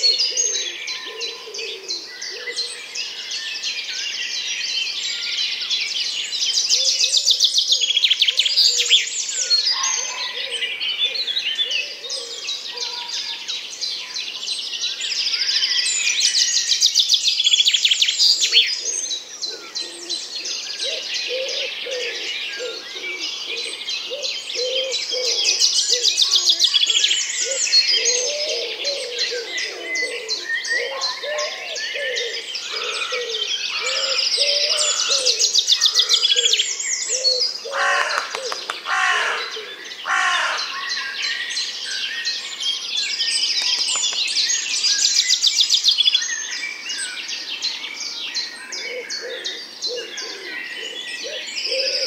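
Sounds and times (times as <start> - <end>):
small birds chirping: 11.0 - 52.0.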